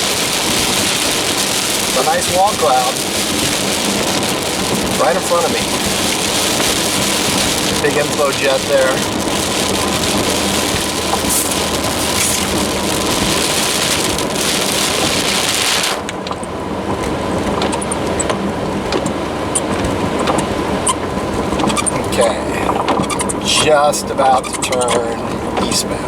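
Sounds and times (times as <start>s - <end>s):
car rumbling on road: 0.0s - 26.0s
heavy rain drumming on car roof: 0.0s - 26.0s.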